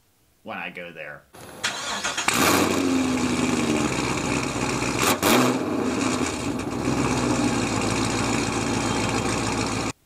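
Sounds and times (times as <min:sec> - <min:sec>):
car engine running: 0:02.2 - 0:10.0.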